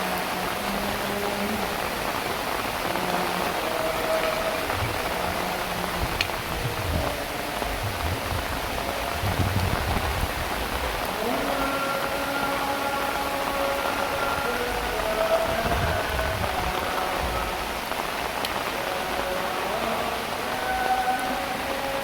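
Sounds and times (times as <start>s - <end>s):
heavy rain falling: 0.0s - 22.0s
wind gusts rumbling: 4.6s - 11.1s, 14.8s - 18.5s.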